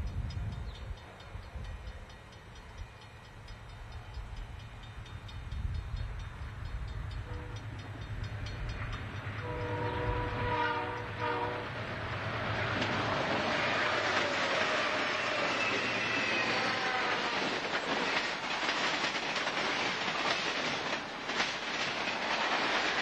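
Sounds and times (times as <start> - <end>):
diesel locomotive engine rumble: 0.0 - 23.0
train wheel noise: 0.0 - 23.0
train air horn: 7.2 - 7.8, 9.4 - 12.0, 13.0 - 17.7.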